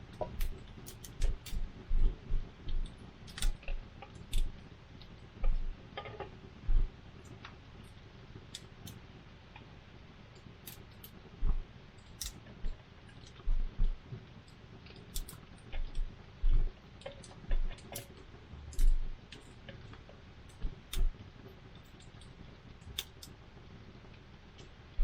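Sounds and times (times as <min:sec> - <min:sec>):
campfire crackling and popping: 0:00.0 - 0:09.7, 0:12.0 - 0:25.0
dull low thumps: 0:01.2 - 0:02.9, 0:05.4 - 0:05.8, 0:06.7 - 0:06.9, 0:11.4 - 0:11.6, 0:13.4 - 0:14.0, 0:15.7 - 0:16.7, 0:17.5 - 0:17.8, 0:18.7 - 0:19.2.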